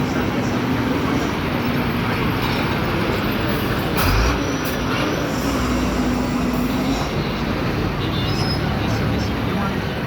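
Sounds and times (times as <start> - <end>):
truck engine rumbling: 0.0 - 10.0.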